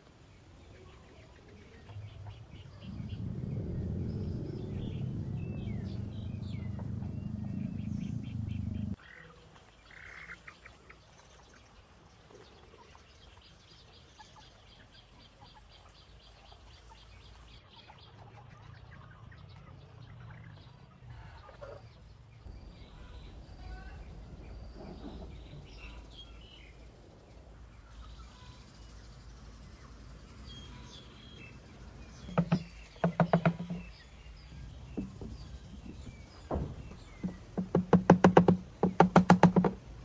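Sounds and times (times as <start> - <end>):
small birds chirping: 0.0 - 40.0
loud low rumble: 1.8 - 9.0.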